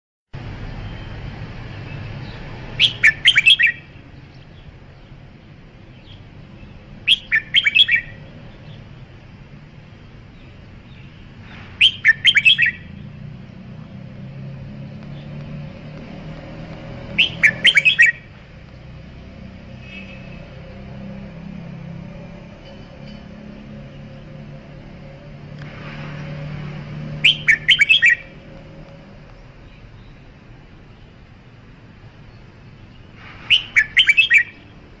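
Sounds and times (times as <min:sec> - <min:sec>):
bird singing whistled phrases: 0:02.8 - 0:03.9, 0:07.1 - 0:08.2, 0:11.8 - 0:13.0, 0:17.1 - 0:18.3, 0:27.2 - 0:28.4, 0:33.5 - 0:34.7.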